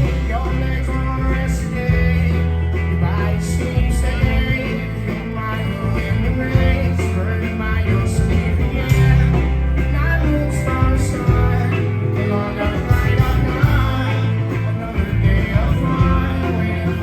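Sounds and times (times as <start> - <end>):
bass notes: 0.0 - 17.0
drums: 0.0 - 17.0
electric guitar: 0.0 - 17.0.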